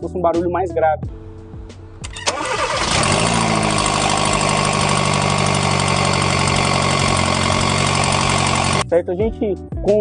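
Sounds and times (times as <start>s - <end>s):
car engine starting and idling: 2.0s - 8.8s.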